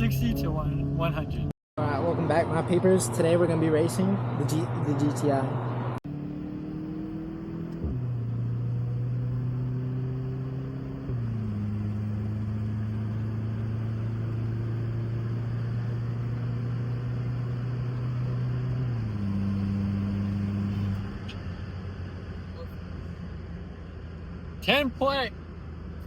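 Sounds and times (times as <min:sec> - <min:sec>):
car engine pulling hard: 0:00.0 - 0:26.0.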